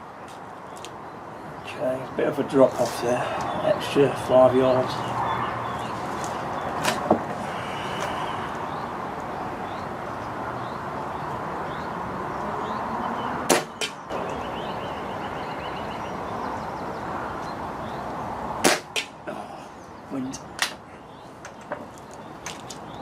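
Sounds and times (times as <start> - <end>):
air rifle firing crack: 13.5 - 14.0, 18.6 - 19.2.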